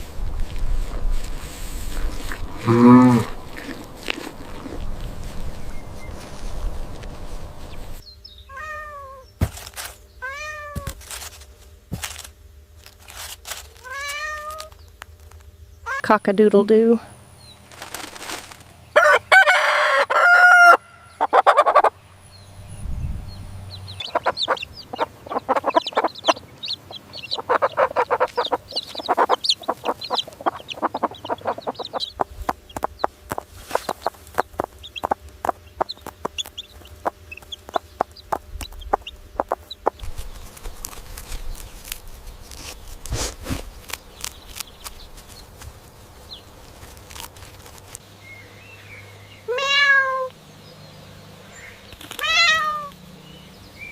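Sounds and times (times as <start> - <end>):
chickens clucking: 17.8 - 22.0, 23.7 - 42.0
rooster crowing: 19.0 - 21.9.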